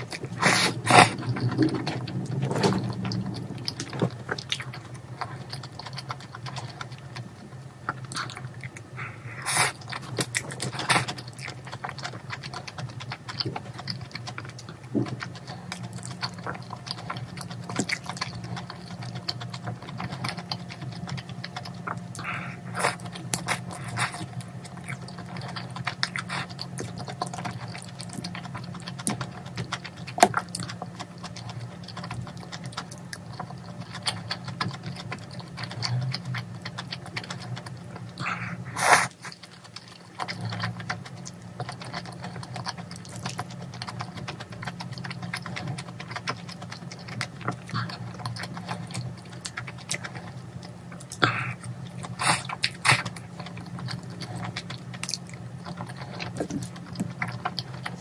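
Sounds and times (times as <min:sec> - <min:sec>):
low hum: 0:00.0 - 0:10.7
person chewing food: 0:00.0 - 0:58.0.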